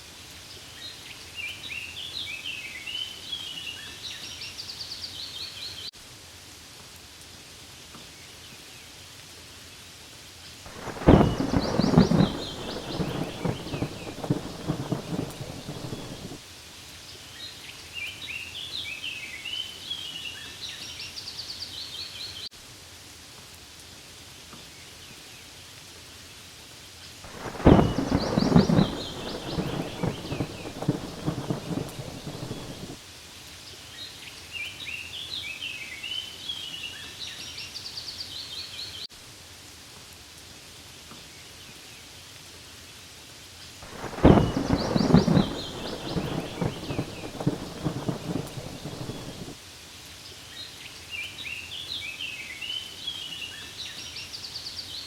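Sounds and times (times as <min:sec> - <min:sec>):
rain falling on leaves: 0:00.0 - 0:55.0
thunder rumbling: 0:10.7 - 0:16.4, 0:27.3 - 0:33.0, 0:43.8 - 0:49.6
birds chirping: 0:10.8 - 0:16.4, 0:27.3 - 0:33.0, 0:43.9 - 0:49.5.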